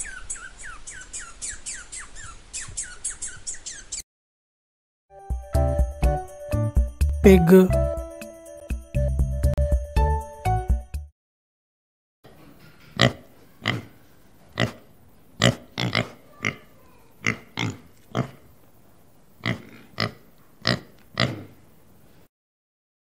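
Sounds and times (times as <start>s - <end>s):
pig grunting: 12.9s - 18.5s, 19.4s - 21.6s.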